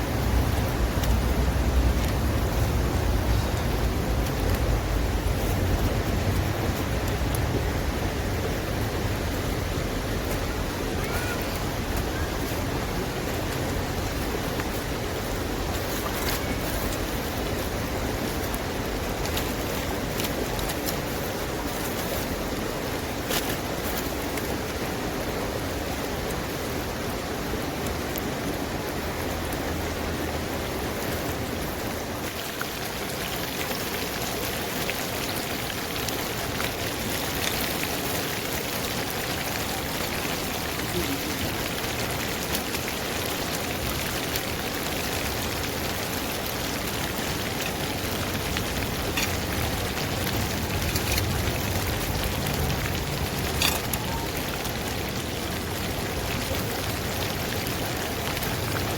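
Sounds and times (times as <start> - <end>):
faint crackles and pops: 34.8 - 58.9.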